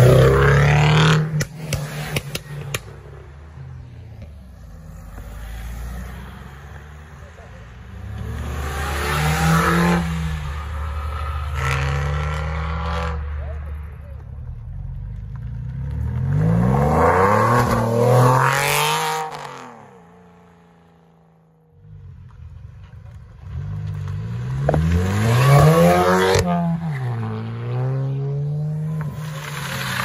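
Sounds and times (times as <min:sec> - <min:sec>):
cars accelerating hard: 0:04.6 - 0:13.6, 0:15.4 - 0:20.3, 0:23.4 - 0:30.0.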